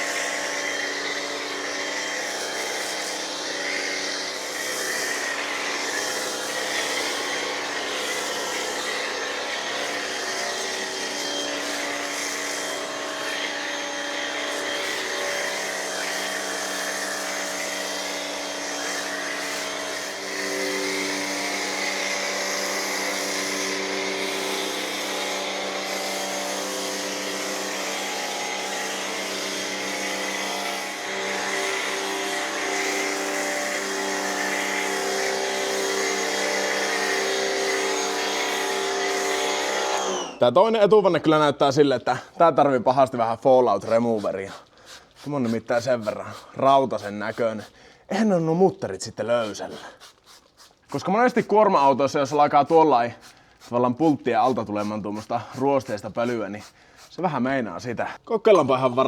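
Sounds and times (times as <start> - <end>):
pressure washer motor hum: 0.0 - 40.4, 49.4 - 57.2
water jet hissing: 43.7 - 48.0, 49.2 - 57.4.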